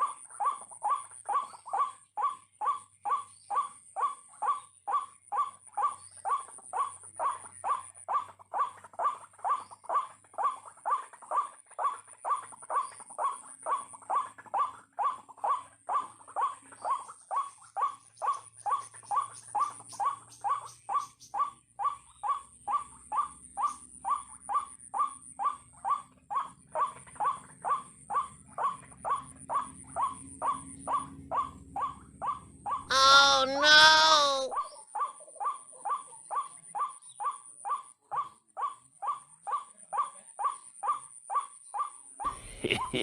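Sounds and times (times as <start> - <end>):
waterhen calling harsh notes: 32.9 - 34.6.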